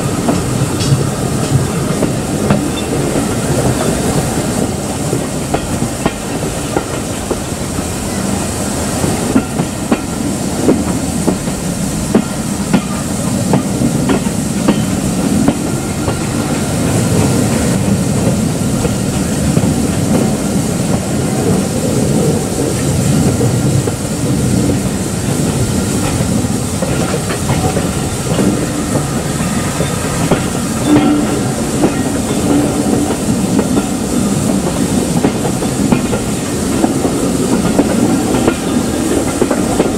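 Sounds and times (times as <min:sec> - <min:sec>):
wheels clicking over rail joints: 0:00.0 - 0:07.8, 0:24.6 - 0:39.9
train rumbling on rails: 0:00.0 - 0:39.9.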